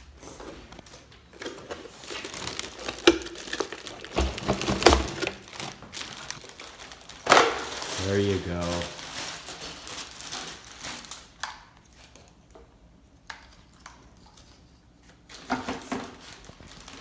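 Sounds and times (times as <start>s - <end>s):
hard plastic parts handled: 0.4s - 6.4s.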